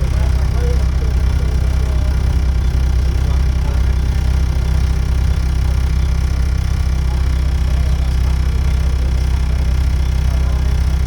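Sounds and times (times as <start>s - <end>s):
bus diesel engine rumbling: 0.0s - 11.0s.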